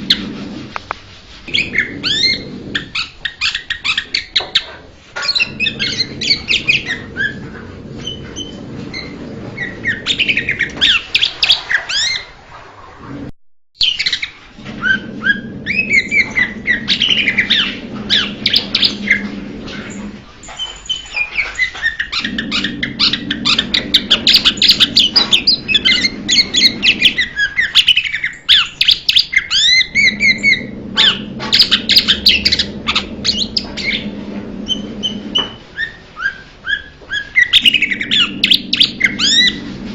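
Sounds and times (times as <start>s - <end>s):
bird song chirps and whistles: 20.5s - 39.6s
low steady hum: 29.7s - 35.8s, 37.5s - 39.9s.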